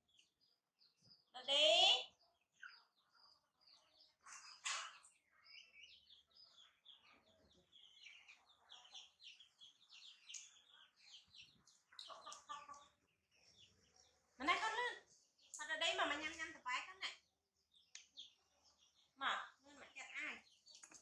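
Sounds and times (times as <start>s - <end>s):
faint birds chirping: 0.0s - 21.0s.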